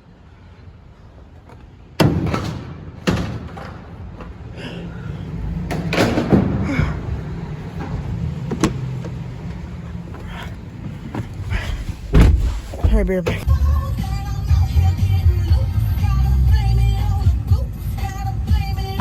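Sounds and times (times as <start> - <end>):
sharp bangs and thuds: 11.2 - 13.5.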